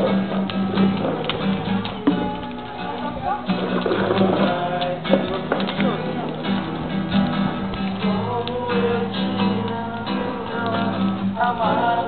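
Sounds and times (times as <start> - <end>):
acoustic guitar strumming: 0.0 - 12.0
voices singing along: 1.1 - 6.5, 8.0 - 12.0.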